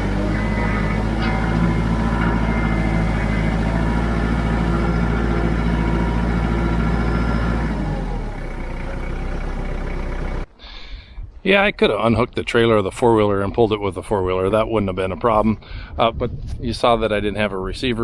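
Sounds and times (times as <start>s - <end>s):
tractor diesel engine running: 0.0s - 10.5s.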